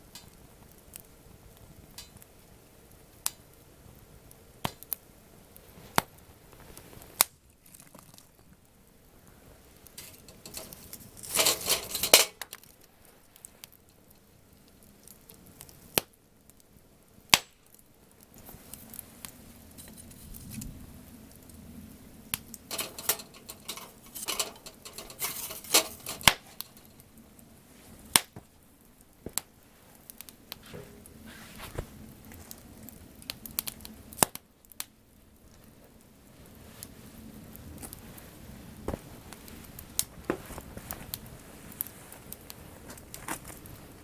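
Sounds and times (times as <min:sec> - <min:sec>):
sharp pops of burning wood: 0:00.0 - 0:20.0, 0:21.4 - 0:31.1, 0:32.0 - 0:36.1, 0:38.7 - 0:44.0
campfire crackling: 0:00.0 - 0:44.0
knocking in the fire: 0:10.0 - 0:12.6.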